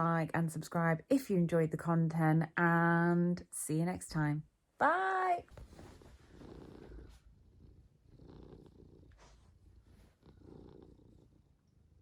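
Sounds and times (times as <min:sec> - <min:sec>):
low rhythmic purring or breathing: 0:05.7 - 0:12.0.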